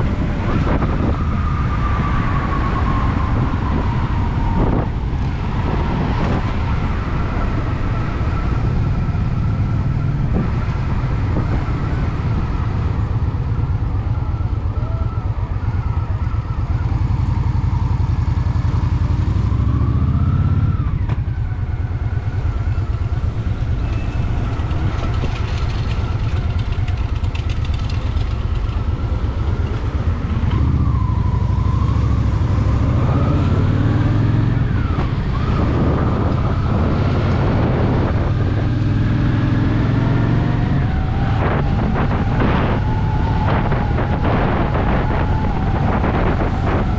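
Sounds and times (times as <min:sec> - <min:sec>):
wind rushing: 0:00.0 - 0:14.3, 0:19.5 - 0:46.9
motorcycle engine running: 0:08.8 - 0:31.0.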